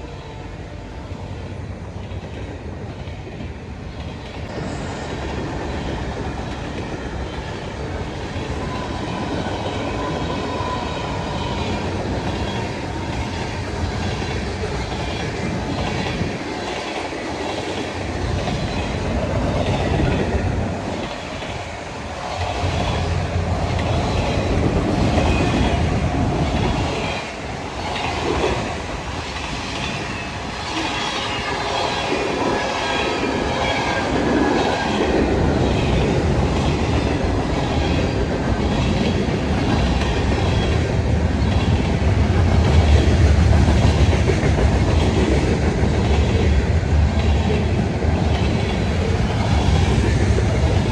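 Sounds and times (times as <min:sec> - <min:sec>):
low train rumble: 0:00.0 - 0:50.9
train wheels clicking over rail joints: 0:31.8 - 0:50.9.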